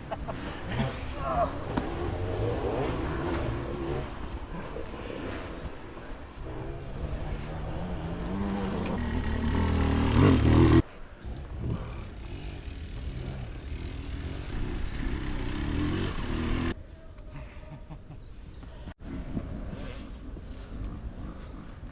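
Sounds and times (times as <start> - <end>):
dirt bike engines revving: 0.0 - 16.8.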